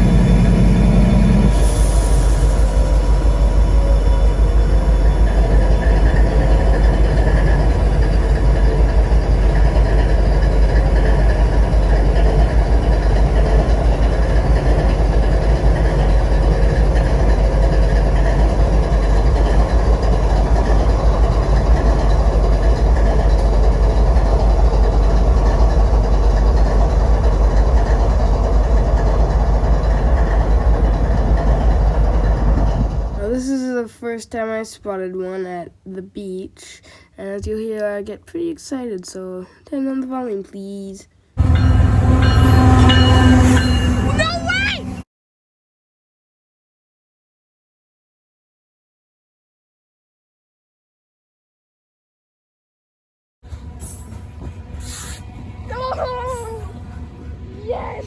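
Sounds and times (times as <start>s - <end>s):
freight train rumbling past: 0.0s - 33.8s, 41.4s - 45.0s, 53.4s - 58.0s
faint steady tones: 41.4s - 45.0s.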